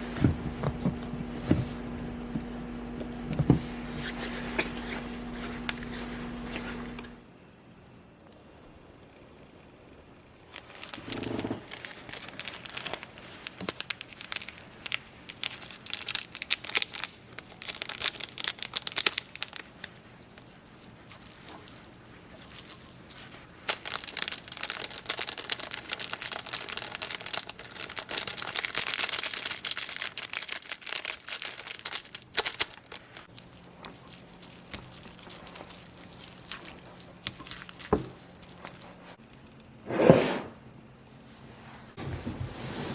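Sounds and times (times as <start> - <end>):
plastic wrapper crinkling and tearing: 10.5 - 39.2.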